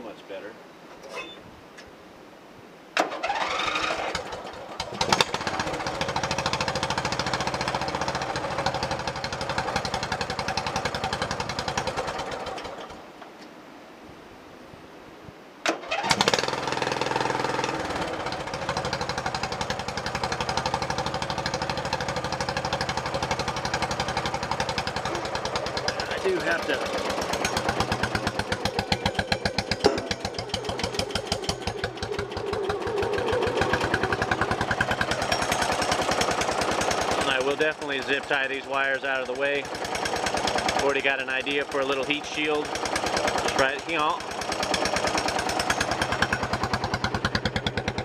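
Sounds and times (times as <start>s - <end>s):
riding lawn tractor engine: 3.0s - 13.2s, 15.6s - 48.0s.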